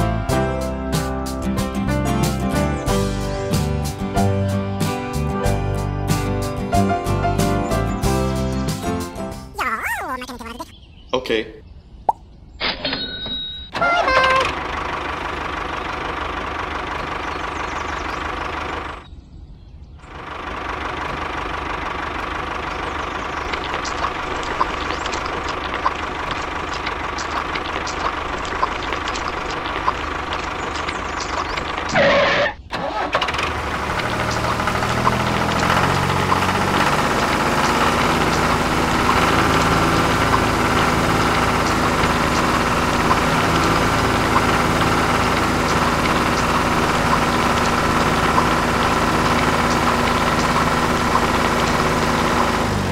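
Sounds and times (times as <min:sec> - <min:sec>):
tractor engine chugging: 0:13.8 - 0:19.1, 0:20.1 - 0:52.9.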